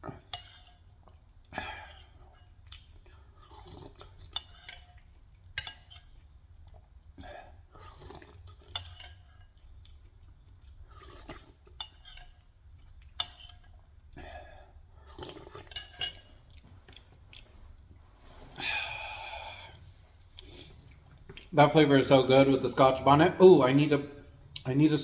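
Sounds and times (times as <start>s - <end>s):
chewing: 0.1s - 21.6s
slurping: 0.2s - 4.9s, 6.8s - 12.2s, 12.8s - 21.8s.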